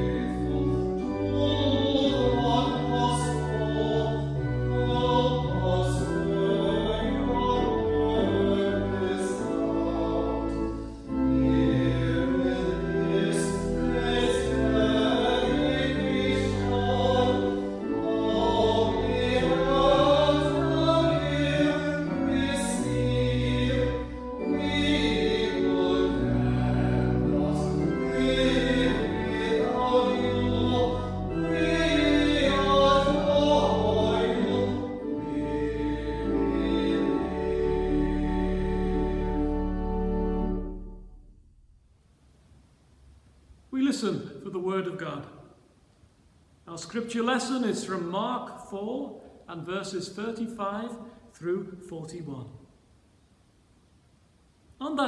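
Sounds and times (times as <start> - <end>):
choir singing: 0.0 - 40.3.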